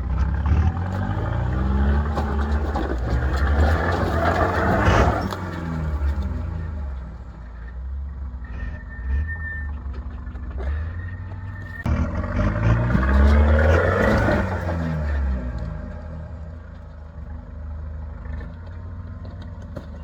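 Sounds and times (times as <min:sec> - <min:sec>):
engine revving: 0:00.0 - 0:17.4.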